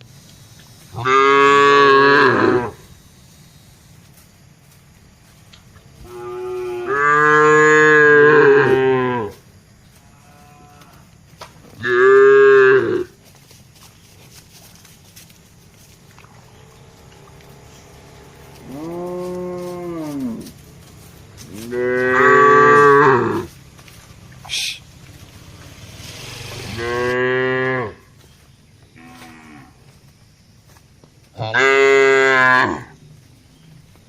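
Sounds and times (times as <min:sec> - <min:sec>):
cattle mooing: 0:01.0 - 0:02.8, 0:06.0 - 0:09.4, 0:10.1 - 0:11.1, 0:11.8 - 0:13.1, 0:16.2 - 0:23.6, 0:26.3 - 0:28.1, 0:29.0 - 0:29.8, 0:31.4 - 0:32.9.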